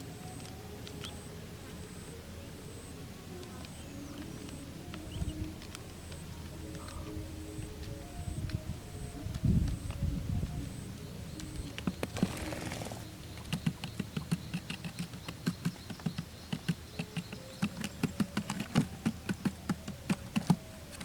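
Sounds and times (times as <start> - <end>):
birds pecking at cardboard: 11.4 - 21.0.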